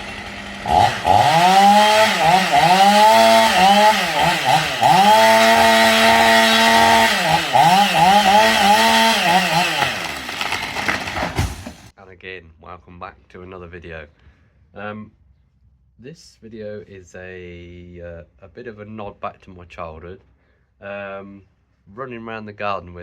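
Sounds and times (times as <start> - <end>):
chainsaw engine revving: 0.0 - 11.9.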